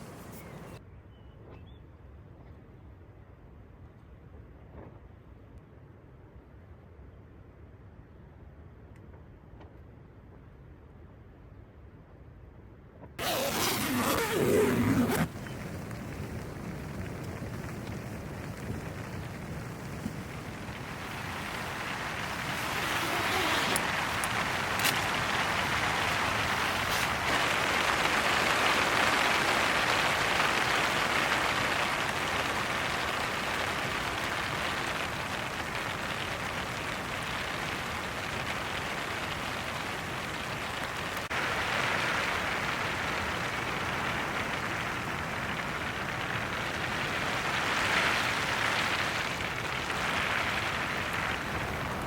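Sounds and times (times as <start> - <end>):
heavy rain on a tent: 0.0 - 0.8, 13.2 - 52.0.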